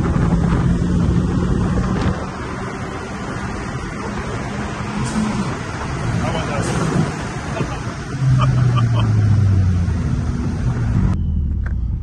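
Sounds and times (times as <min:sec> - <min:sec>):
car engine droning: 0:00.0 - 0:12.0
road and wind noise: 0:00.0 - 0:12.0.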